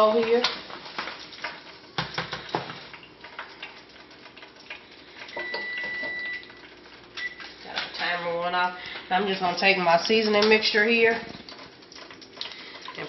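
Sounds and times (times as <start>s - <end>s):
high steady beep: 5.4s - 6.4s.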